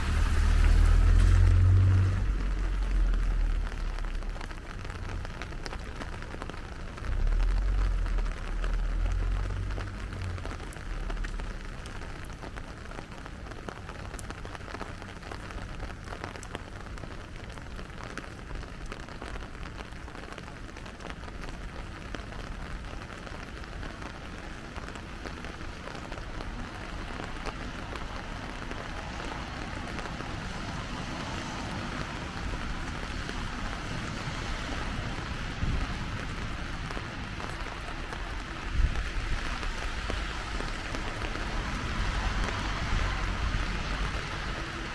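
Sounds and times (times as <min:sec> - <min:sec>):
low rumble: 0:00.0 - 0:05.9, 0:06.7 - 0:12.4
steady rain on street: 0:00.0 - 0:44.9.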